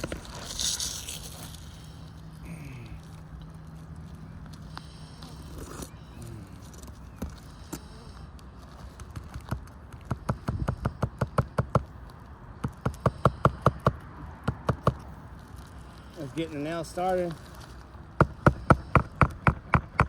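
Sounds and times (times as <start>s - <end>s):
hammer striking nails: 9.2s - 11.9s, 12.6s - 15.0s, 18.2s - 20.0s.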